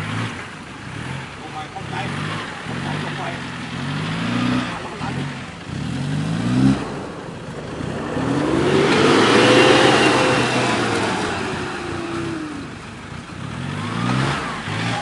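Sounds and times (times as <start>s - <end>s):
off-road engine revving: 0.0s - 15.0s
broad rushing noise: 4.1s - 15.0s.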